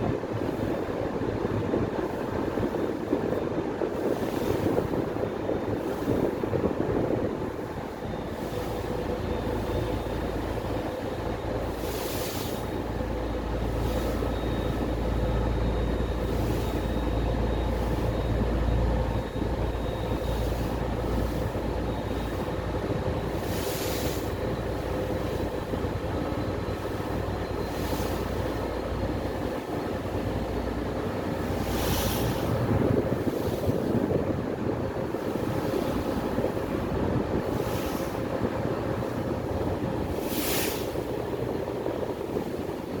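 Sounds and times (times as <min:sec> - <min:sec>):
ferry engine droning: 0:00.0 - 0:43.0
hiss of wind and water: 0:00.0 - 0:43.0.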